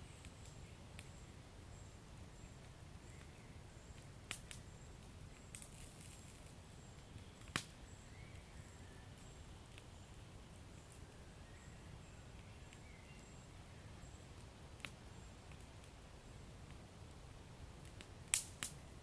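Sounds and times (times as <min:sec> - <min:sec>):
wood fire crackling: 0:00.0 - 0:19.0
sharp pop of fire: 0:07.4 - 0:07.8, 0:18.2 - 0:18.8.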